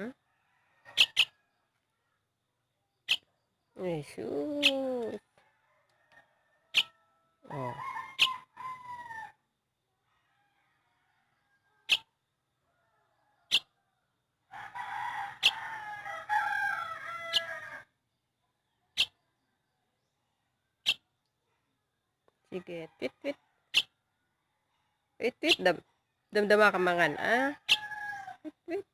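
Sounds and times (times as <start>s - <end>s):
bird chirping: 1.0s - 1.4s, 2.9s - 5.2s, 6.7s - 6.9s, 11.9s - 12.1s, 13.5s - 13.7s, 18.9s - 19.2s, 20.8s - 21.1s, 23.7s - 23.9s.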